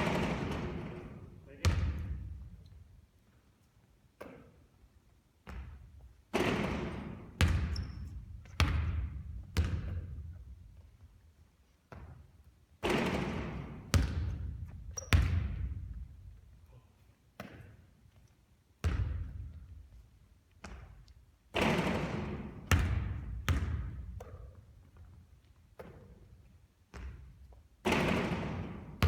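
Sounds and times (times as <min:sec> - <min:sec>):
basketball rattling on rim: 0:00.0 - 0:02.0, 0:06.3 - 0:10.2, 0:12.8 - 0:15.8, 0:21.5 - 0:24.6, 0:27.8 - 0:29.0
basketball bouncing thuds: 0:05.4 - 0:10.5, 0:12.8 - 0:16.1, 0:17.4 - 0:17.8, 0:18.8 - 0:19.6, 0:20.6 - 0:25.2, 0:26.9 - 0:29.0.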